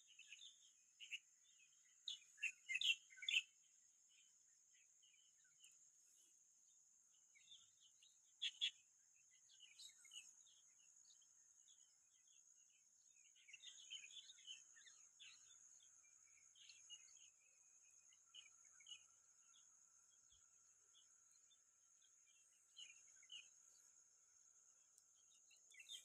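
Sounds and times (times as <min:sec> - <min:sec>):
faint small birds chirping: 0:00.0 - 0:26.0.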